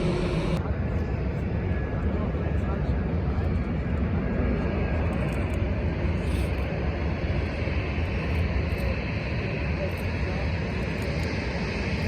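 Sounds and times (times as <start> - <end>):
jet airliner engines roaring: 0.0 - 12.0.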